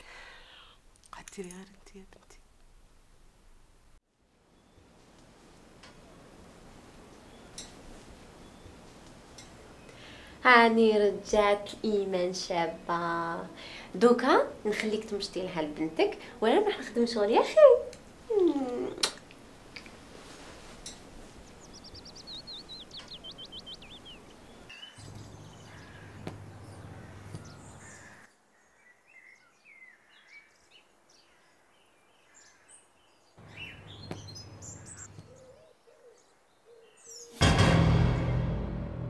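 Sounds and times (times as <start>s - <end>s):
birds chirping: 6.0s - 13.9s, 20.8s - 37.4s.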